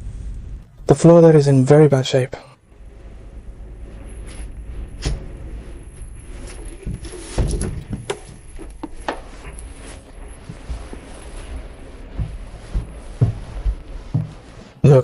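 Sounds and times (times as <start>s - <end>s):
steady low rumble: 0.0s - 14.9s
footsteps on debris: 4.1s - 15.0s
heavy thump: 6.8s - 9.6s, 10.3s - 14.8s.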